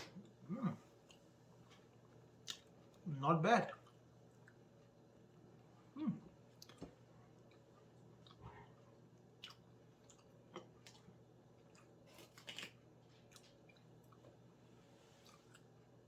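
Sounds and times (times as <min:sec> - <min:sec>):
person chewing crunchy food: 0:06.4 - 0:16.0.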